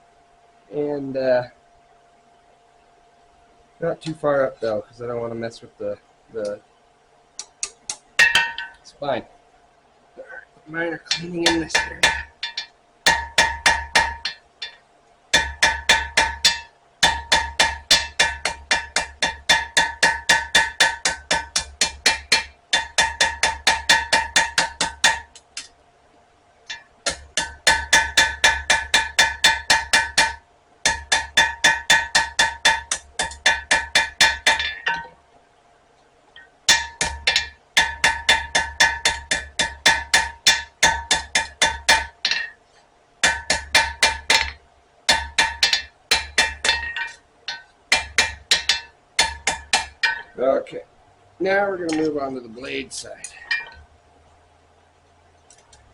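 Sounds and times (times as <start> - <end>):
hammer striking steel on anvil: 7.6 - 8.8, 11.0 - 25.7, 26.7 - 35.2, 36.7 - 42.6, 43.2 - 50.4, 51.8 - 53.8.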